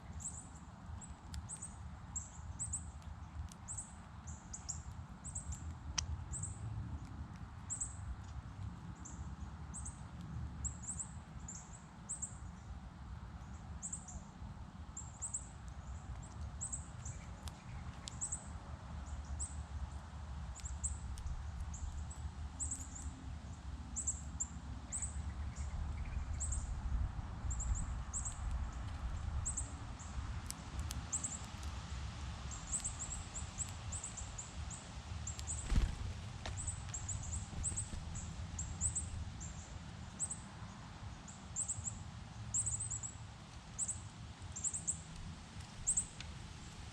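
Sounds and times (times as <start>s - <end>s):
small birds chirping: 0.0s - 12.8s, 13.4s - 46.8s
steady low rumble: 35.3s - 39.6s.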